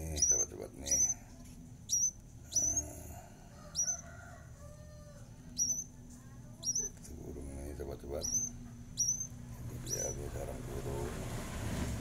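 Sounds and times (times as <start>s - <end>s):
small bird chirping: 0.0s - 1.2s, 1.8s - 4.2s, 5.5s - 7.1s, 8.0s - 10.2s.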